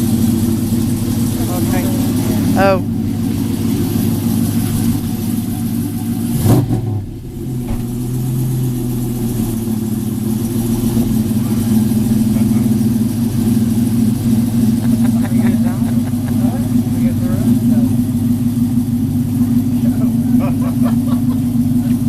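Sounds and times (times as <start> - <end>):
truck engine idling: 0.0 - 22.0
thump: 7.6 - 8.1.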